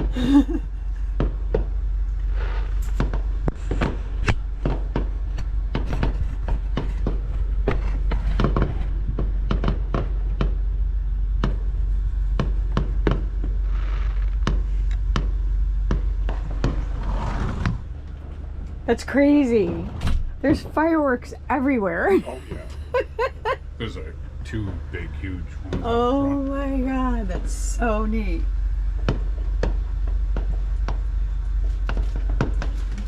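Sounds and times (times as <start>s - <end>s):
low rumble: 0.0s - 33.0s
fireworks bangs and pops: 2.8s - 10.6s.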